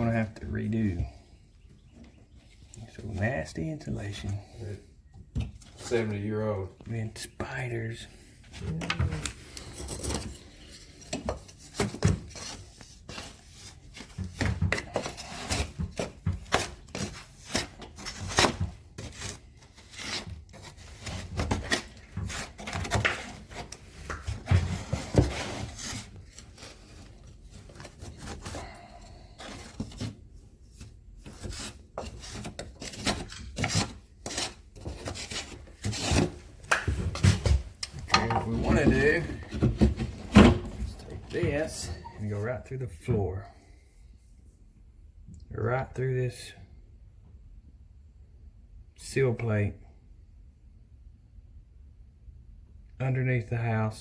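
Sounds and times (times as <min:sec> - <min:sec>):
rubbing scraping and knocking: 0:08.4 - 0:42.3.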